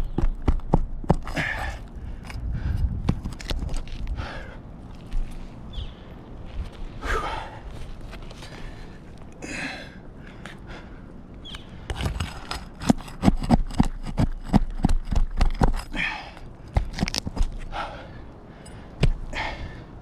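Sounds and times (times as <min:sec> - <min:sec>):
heavy breathing: 0:01.3 - 0:03.0, 0:04.0 - 0:05.5, 0:06.9 - 0:12.0, 0:15.8 - 0:16.9, 0:17.5 - 0:20.0
knocks on roof shingles: 0:11.9 - 0:15.9, 0:16.7 - 0:17.6.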